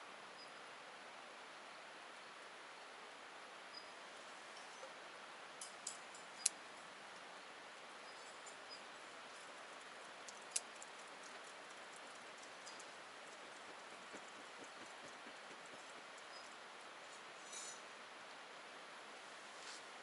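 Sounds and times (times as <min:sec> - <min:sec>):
campfire crackling: 0:05.6 - 0:17.4.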